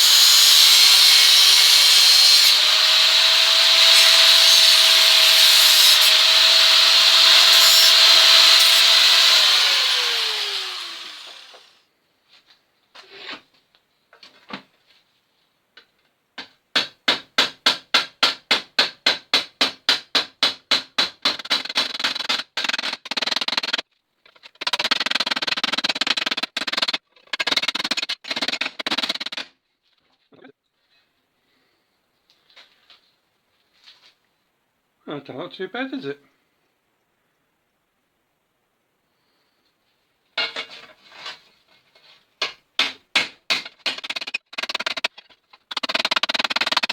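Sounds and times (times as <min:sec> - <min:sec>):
rasping file strokes: 0:00.0 - 0:11.7, 0:43.8 - 0:46.9
power tool whining: 0:00.0 - 0:11.8
rhythmic hand strokes on steel: 0:03.7 - 0:09.5.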